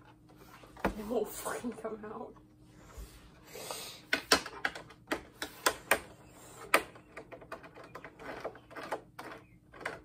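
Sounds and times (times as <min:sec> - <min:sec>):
hard parts clicking and knocking: 0:04.1 - 0:10.0.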